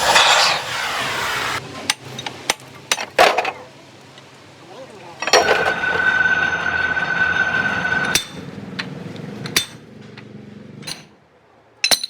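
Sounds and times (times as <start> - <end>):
power tool whining: 0.0 - 2.0, 5.2 - 9.6.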